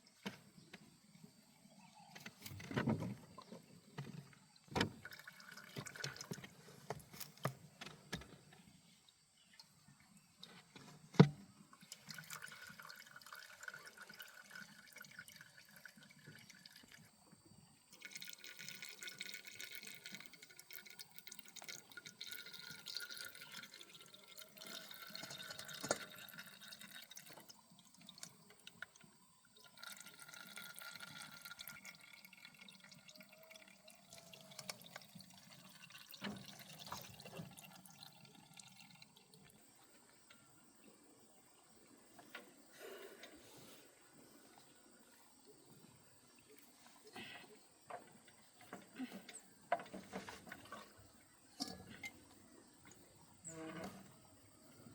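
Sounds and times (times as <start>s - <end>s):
liquid running and splashing: 18.0s - 28.4s, 29.7s - 39.4s.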